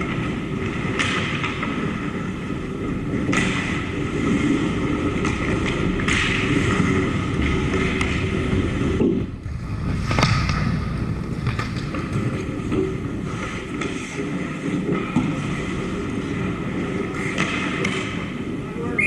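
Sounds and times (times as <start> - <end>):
skates and sticks scraping: 0.0 - 19.0
loud puck strike: 0.6 - 1.9, 3.3 - 3.9, 5.2 - 15.5, 17.1 - 18.4
low rumble: 3.9 - 17.2.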